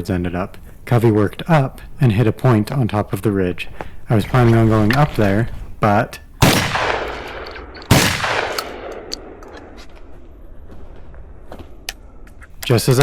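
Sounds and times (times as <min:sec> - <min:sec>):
shotgun shots with echo: 0:06.4 - 0:09.4.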